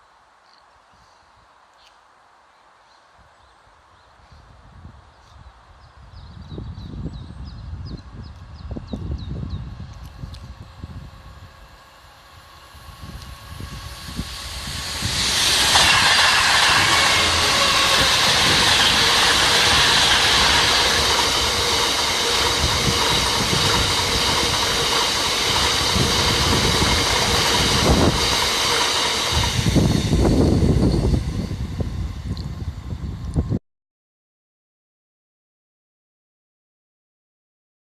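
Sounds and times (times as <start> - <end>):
train wheels rushing on rail: 9.0 - 33.5
low rumble: 9.4 - 28.3.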